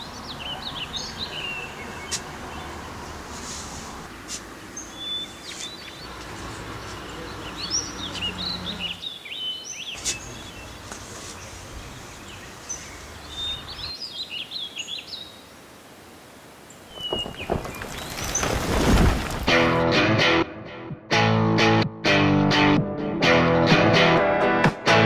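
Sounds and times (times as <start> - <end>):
songbirds chirping: 0.0 - 19.8.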